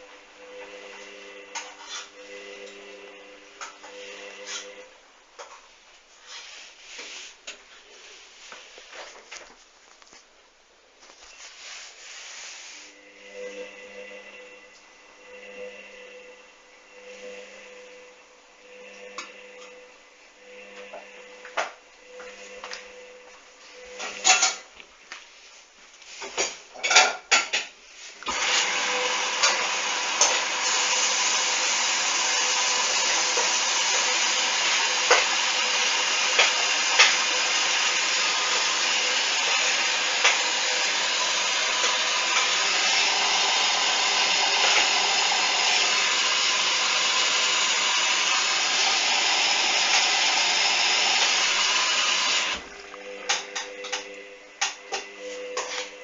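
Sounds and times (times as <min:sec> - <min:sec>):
water filling drum hiss: 0:27.8 - 0:56.0.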